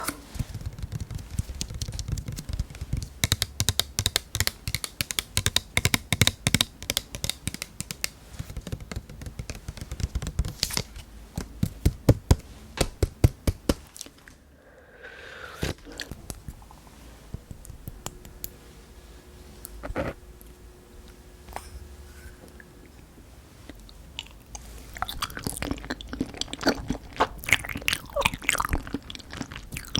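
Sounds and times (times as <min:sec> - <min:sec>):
tapping clicks: 0:00.5 - 0:10.7.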